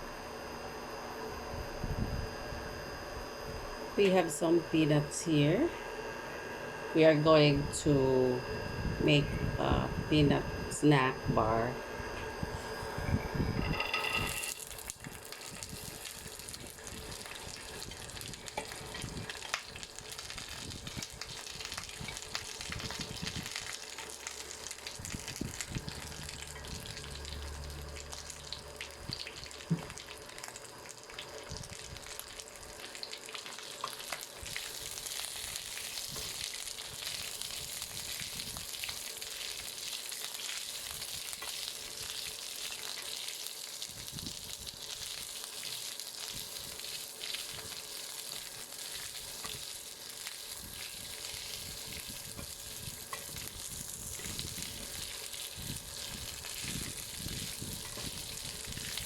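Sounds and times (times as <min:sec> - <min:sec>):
peanuts sizzling in a pan: 0:14.0 - 0:59.0.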